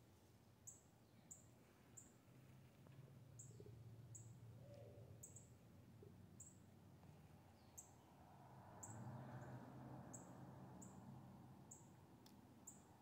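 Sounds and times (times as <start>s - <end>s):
faint high bird chirps: 3.4s - 6.6s, 7.5s - 8.1s.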